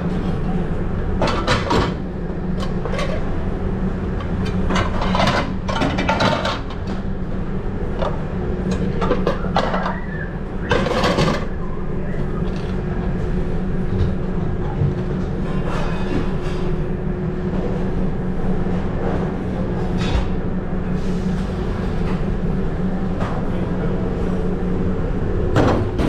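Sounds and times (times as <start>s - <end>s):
low fan hum: 0.0s - 26.0s
pans and utensils clattering: 4.5s - 6.9s, 8.7s - 11.6s.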